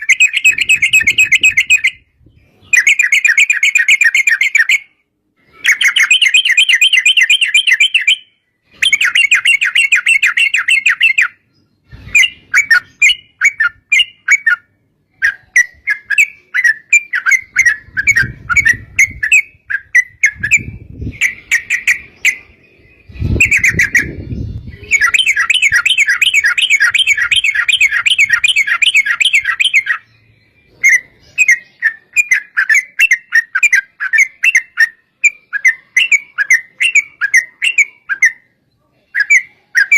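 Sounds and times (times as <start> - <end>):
bulbul chattering trills: 12.0 - 39.9.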